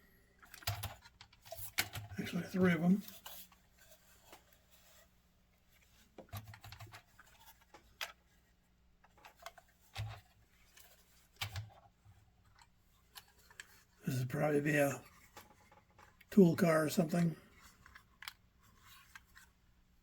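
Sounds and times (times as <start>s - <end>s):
plastic model train cars clicking: 0.4s - 2.2s.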